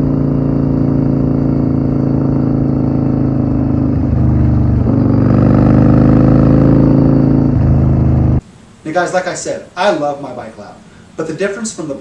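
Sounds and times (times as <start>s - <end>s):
motorcycle engine accelerating: 0.0s - 8.4s.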